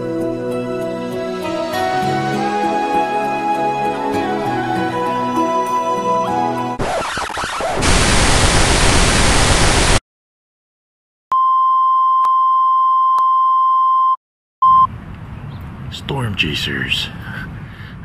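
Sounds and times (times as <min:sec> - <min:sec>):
white-noise static: 0:06.8 - 0:10.0.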